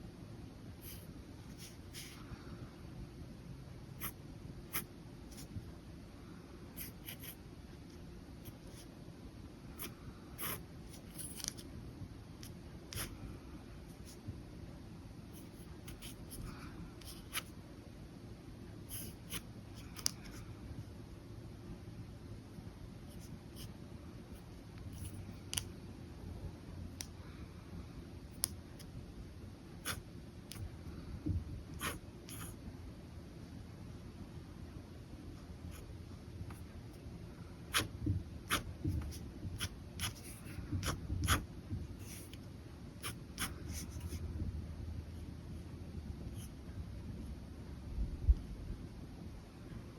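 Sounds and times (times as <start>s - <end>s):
low background hum: 0.0s - 49.9s
pen nib scratching on paper: 4.0s - 5.6s, 6.8s - 7.4s, 9.7s - 11.6s, 12.4s - 13.2s, 15.3s - 17.5s, 18.9s - 20.4s, 24.9s - 25.7s, 29.8s - 30.7s, 31.7s - 32.6s, 37.7s - 42.4s, 43.0s - 44.3s.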